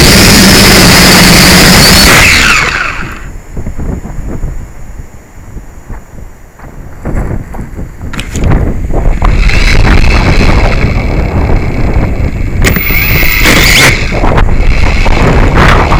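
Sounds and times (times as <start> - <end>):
quadcopter motors whining: 0.0 - 3.4, 8.2 - 15.9
wind buffeting microphone: 0.0 - 15.9.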